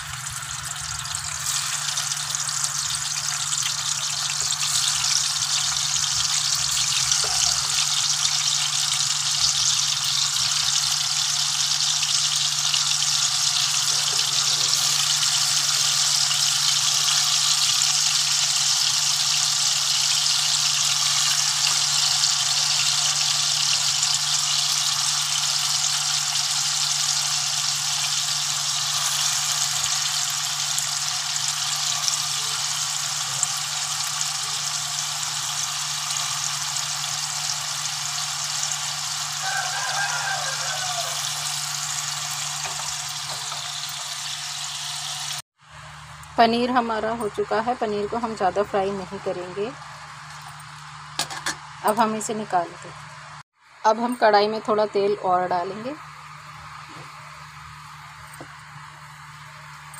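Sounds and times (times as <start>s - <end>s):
cheese sizzling in hot oil: 0.0s - 45.4s.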